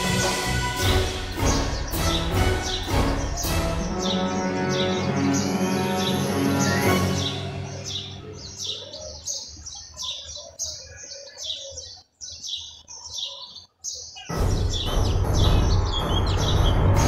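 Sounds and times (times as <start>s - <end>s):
loud music: 0.0s - 8.3s, 14.3s - 17.0s
small songbirds chirping: 0.0s - 17.0s.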